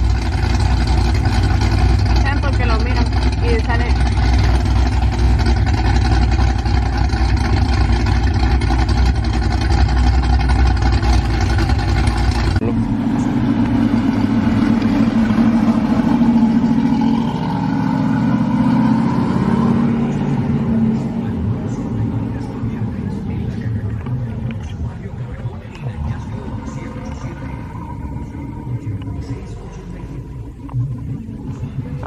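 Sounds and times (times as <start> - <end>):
car engine deep rumble: 0.0 - 32.0
car engine high pulsing note: 0.0 - 32.0.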